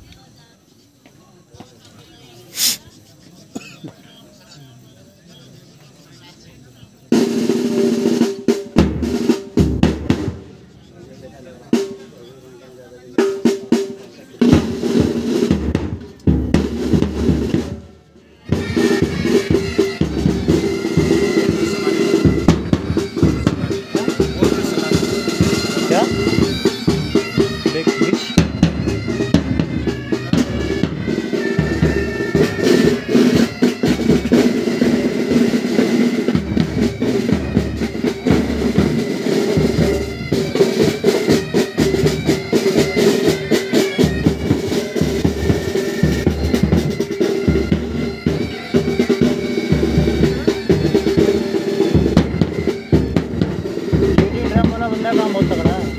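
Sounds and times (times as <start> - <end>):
bagpipes droning: 18.3 - 55.9
snare drums rattling: 18.5 - 55.9.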